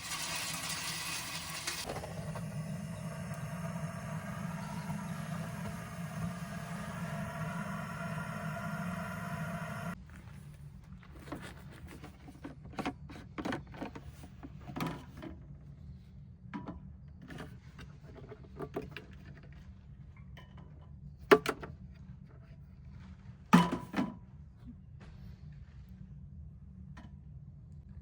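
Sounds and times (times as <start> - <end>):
faint low hum: 1.9 - 17.9.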